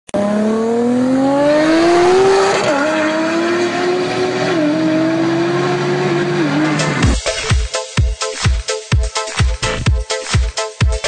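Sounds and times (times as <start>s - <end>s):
car engine accelerating hard: 0.1s - 7.2s.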